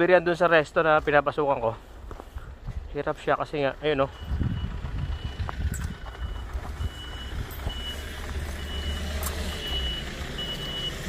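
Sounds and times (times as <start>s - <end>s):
truck reversing alarm beeping: 3.7s - 11.0s
truck engine running: 4.0s - 11.0s.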